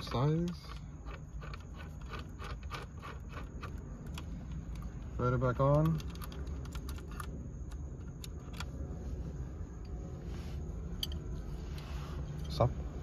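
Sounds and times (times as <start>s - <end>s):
low hum: 6.1s - 13.0s.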